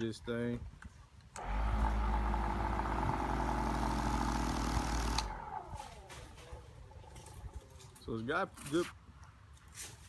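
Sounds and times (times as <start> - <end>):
orbital polisher motor humming: 1.4 - 6.1.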